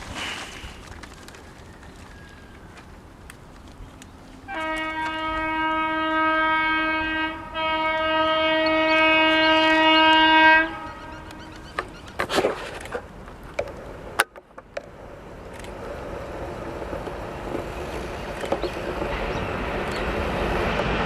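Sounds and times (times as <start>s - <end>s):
locomotive air horn blasts: 4.5s - 11.5s.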